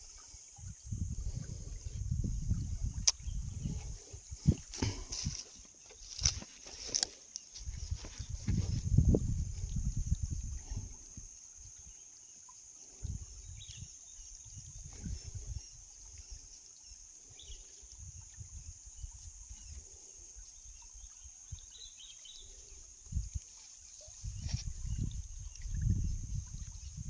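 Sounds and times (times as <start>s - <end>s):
high insect drone: 0.0s - 27.0s.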